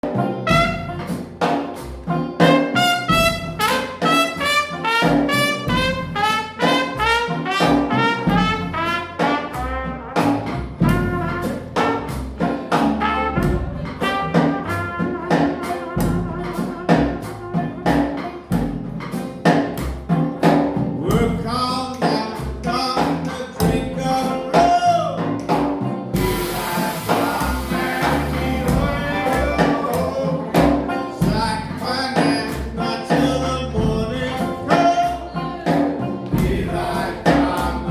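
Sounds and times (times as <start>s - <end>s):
trumpet: 0.0s - 18.6s, 26.1s - 35.2s
trombone: 0.0s - 19.7s, 20.3s - 37.9s
jazz band playing: 0.0s - 37.9s.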